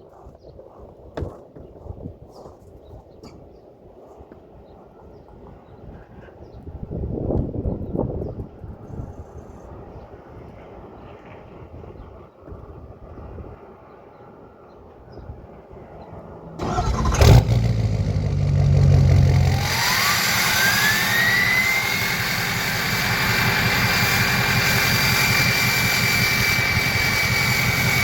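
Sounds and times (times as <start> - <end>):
diesel engine starting and idling: 16.6 - 28.0.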